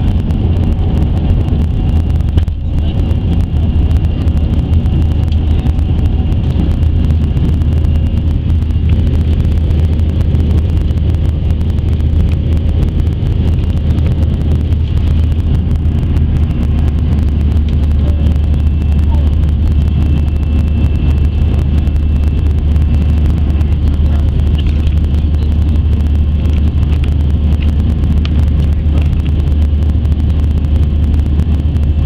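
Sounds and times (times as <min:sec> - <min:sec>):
high engine whine: 0:00.0 - 0:32.0
jet engines rumbling in cabin: 0:00.0 - 0:32.0.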